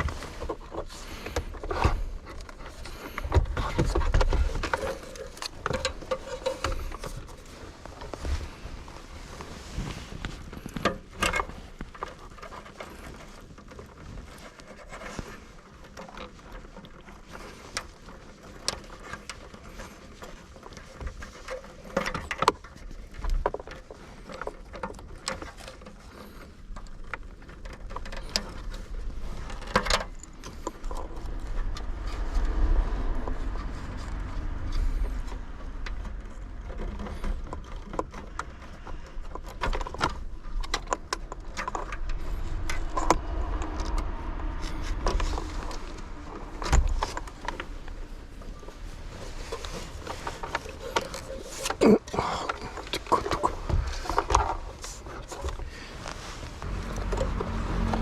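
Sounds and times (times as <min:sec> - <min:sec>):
objects clicking and knocking: 0:00.0 - 0:58.0
low rumble: 0:30.7 - 0:37.2, 0:41.3 - 0:51.0, 0:52.2 - 0:58.0.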